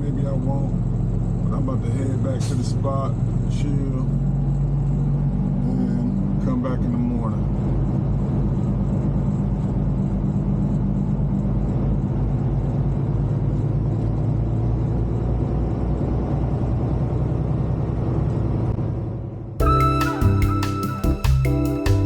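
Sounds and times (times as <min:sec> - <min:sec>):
music: 0:19.6 - 0:22.0.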